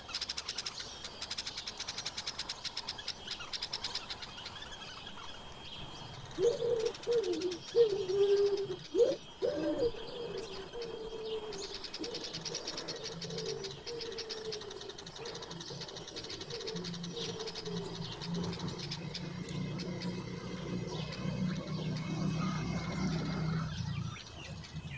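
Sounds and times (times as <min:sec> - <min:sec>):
small birds chirping: 0:00.0 - 0:24.9
dove cooing: 0:06.2 - 0:24.6.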